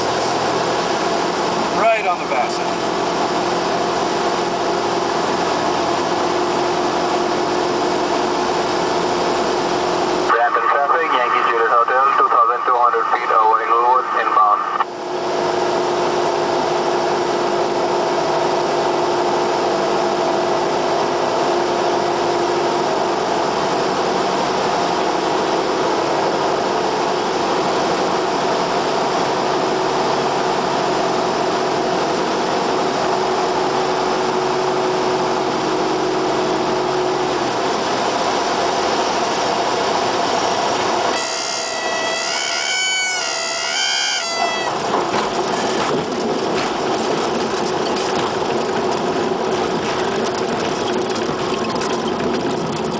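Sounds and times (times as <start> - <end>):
aircraft engine and propeller: 0.0 - 52.9
warbling warning horn: 41.1 - 45.1.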